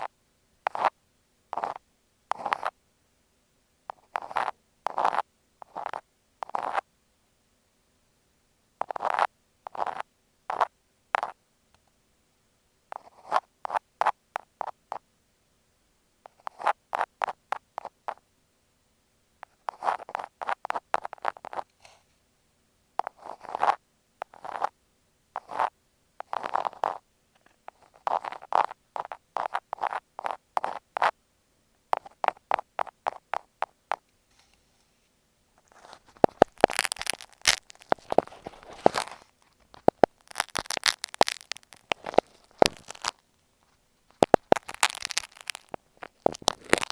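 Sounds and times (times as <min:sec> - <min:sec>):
bright crackling: 0:39.7 - 0:43.2, 0:44.1 - 0:46.9.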